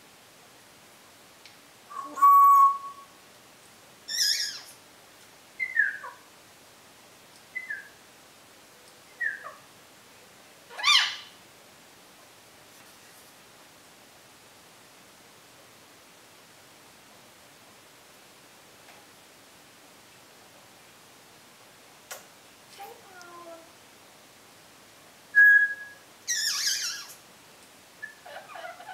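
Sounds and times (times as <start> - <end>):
parrot whistling and calling: 1.9 - 3.1, 4.1 - 4.7, 5.6 - 6.2, 7.5 - 8.0, 9.2 - 9.6, 10.7 - 11.3, 25.4 - 27.2, 28.0 - 28.9.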